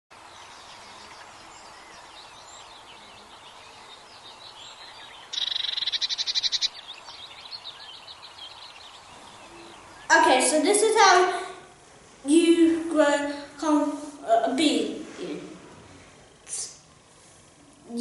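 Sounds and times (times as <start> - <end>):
rapid bird trill: 0.2 - 10.2
small birds chirping: 0.2 - 11.2.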